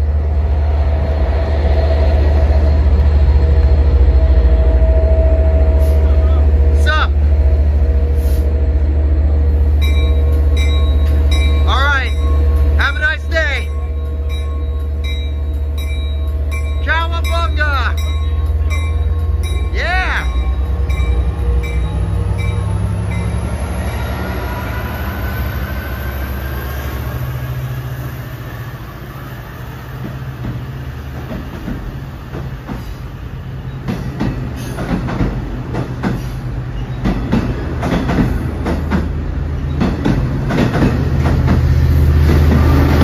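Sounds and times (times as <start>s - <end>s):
diesel locomotive engine hum: 0.0s - 43.0s.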